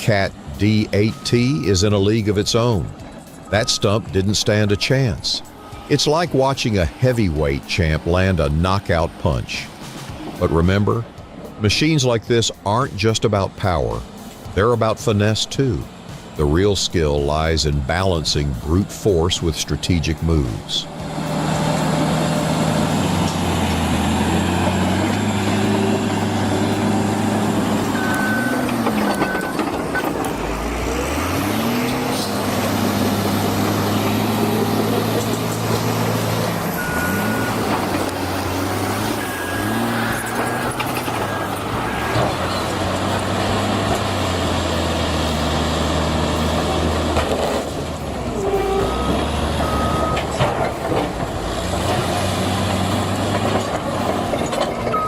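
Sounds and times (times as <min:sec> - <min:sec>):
heavy diesel engine revving: 0:00.0 - 0:55.0
short high beeps: 0:36.7 - 0:37.7, 0:39.0 - 0:42.3, 0:48.7 - 0:50.4.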